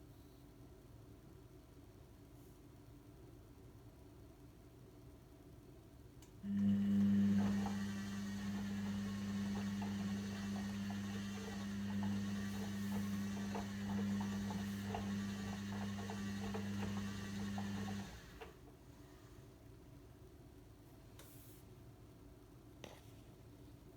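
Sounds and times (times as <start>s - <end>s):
washing machine low hum: 6.4s - 18.8s.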